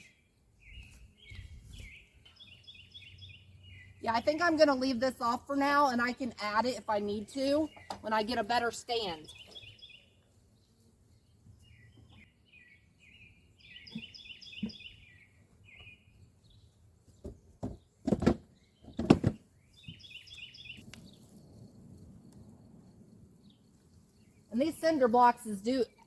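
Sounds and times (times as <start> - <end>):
small bird chirping: 0.0 - 4.6, 6.8 - 17.9, 18.5 - 21.4
thumps and knocks: 17.2 - 19.4.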